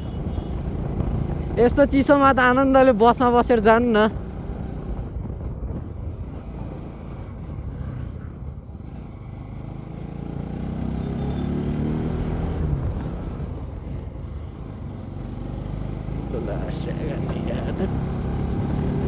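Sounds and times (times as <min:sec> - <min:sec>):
wind rushing over microphone: 0:00.0 - 0:09.0
motorcycle engine running: 0:00.0 - 0:19.0.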